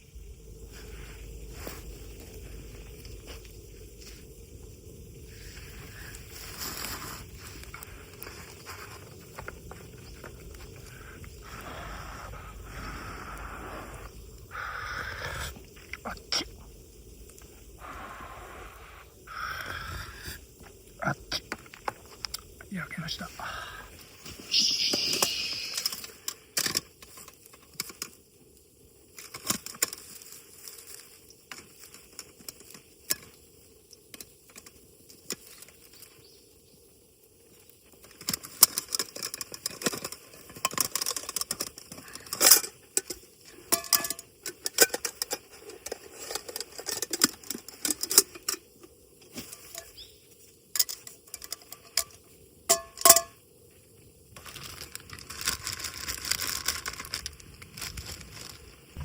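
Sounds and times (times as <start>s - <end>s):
small metal items clinking: 38.0s - 48.7s, 50.7s - 53.4s.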